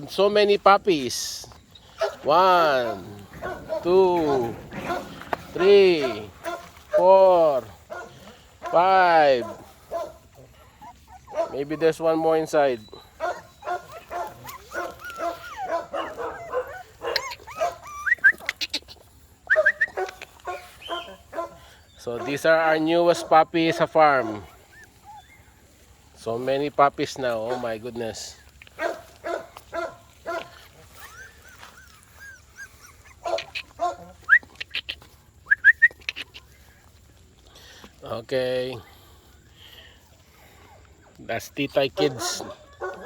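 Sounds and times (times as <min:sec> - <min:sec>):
puppies whimpering and squeaking: 0:01.0 - 0:07.6, 0:08.8 - 0:29.2, 0:30.0 - 0:37.2.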